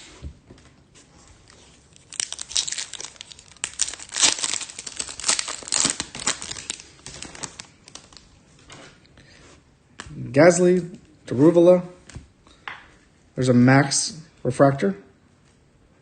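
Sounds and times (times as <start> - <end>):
foil wrapper crinkling and tearing: 1.5 - 8.3.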